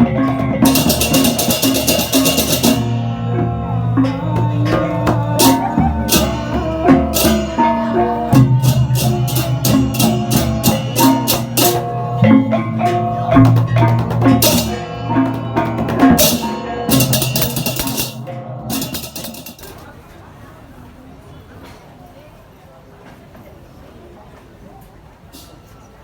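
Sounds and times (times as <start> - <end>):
gamelan ensemble music: 0.0 - 19.8
drum strokes: 0.0 - 19.9.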